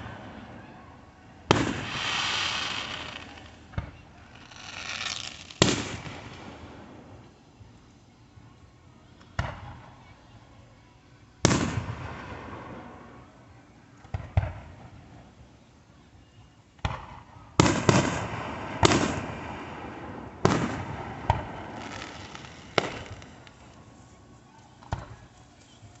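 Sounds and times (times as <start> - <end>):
fireworks bangs: 1.5 - 7.2, 11.4 - 13.1, 16.8 - 24.1, 24.8 - 25.9.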